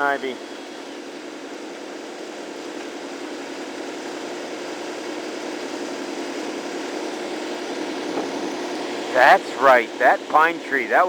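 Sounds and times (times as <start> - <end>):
power equipment droning: 0.0 - 0.8, 6.3 - 11.0.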